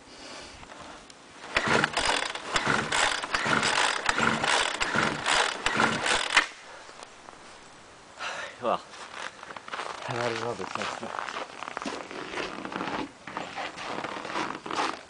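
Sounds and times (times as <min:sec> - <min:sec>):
recoil starter pulls: 0:01.4 - 0:07.1.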